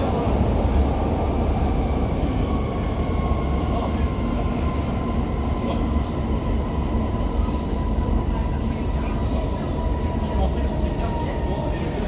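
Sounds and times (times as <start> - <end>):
metro train rumbling with whine: 0.0 - 12.0.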